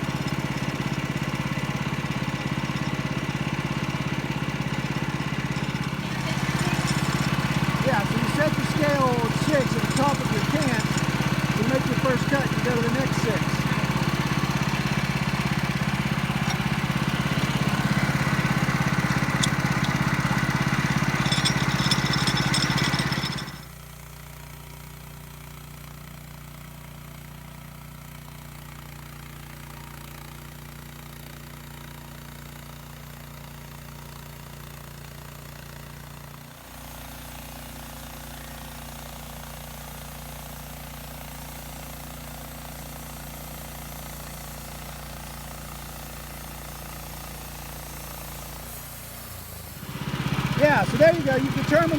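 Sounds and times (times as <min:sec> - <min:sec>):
sawmill engine running: 0:00.0 - 0:24.2, 0:27.8 - 0:51.9
saw blade cutting log: 0:05.7 - 0:14.4, 0:50.2 - 0:51.9.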